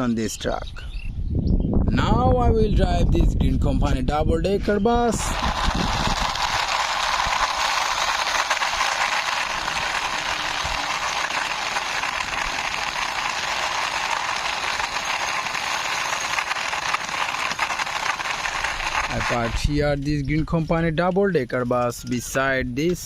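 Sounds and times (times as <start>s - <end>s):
toy wheels rattling on wall: 5.1s - 20.0s.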